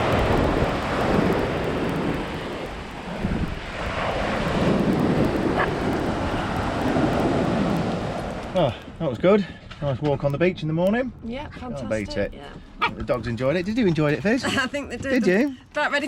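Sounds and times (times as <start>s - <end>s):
ocean surf: 0.0s - 9.0s
wind buffeting microphone: 0.0s - 16.0s.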